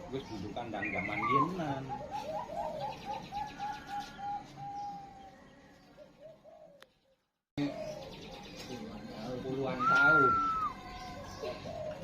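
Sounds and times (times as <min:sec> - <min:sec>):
dove cooing: 0:00.8 - 0:05.4, 0:06.0 - 0:06.8, 0:07.6 - 0:08.2, 0:09.8 - 0:12.0.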